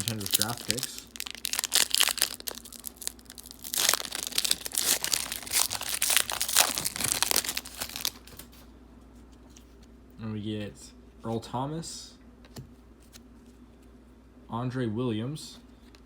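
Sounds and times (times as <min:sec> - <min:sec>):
card pack wrapper crinkling: 0:00.0 - 0:08.6.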